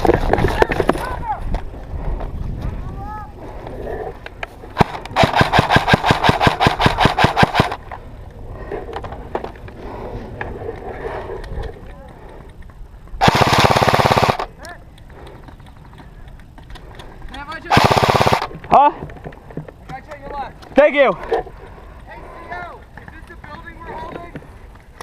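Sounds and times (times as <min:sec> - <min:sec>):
airsoft guns firing full-auto: 0:04.8 - 0:07.8, 0:13.2 - 0:14.5, 0:17.7 - 0:18.6.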